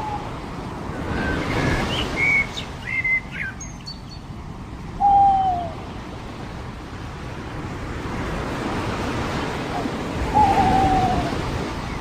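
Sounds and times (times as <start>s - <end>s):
surf washing: 0.0s - 12.0s
birds chirping and whistling: 1.2s - 4.2s, 5.0s - 5.8s, 10.3s - 11.4s.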